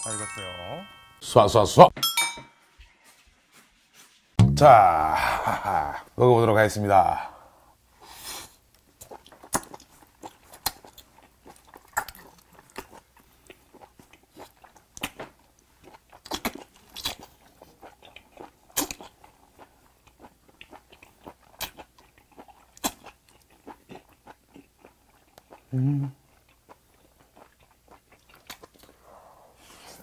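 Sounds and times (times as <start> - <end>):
person biting and chewing: 9.0 - 15.2, 15.8 - 25.7, 26.3 - 28.9.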